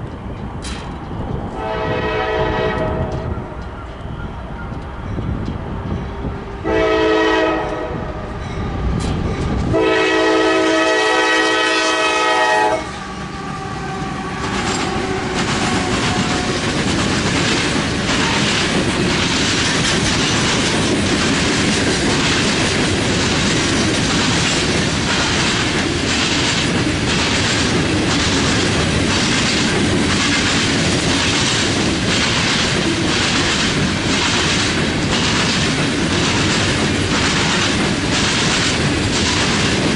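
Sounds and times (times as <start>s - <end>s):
wheels clicking over rail joints: 0.0s - 1.2s, 14.4s - 39.9s
train rumble: 0.0s - 39.9s
locomotive air horn: 1.6s - 3.6s, 6.6s - 8.3s, 9.7s - 16.5s.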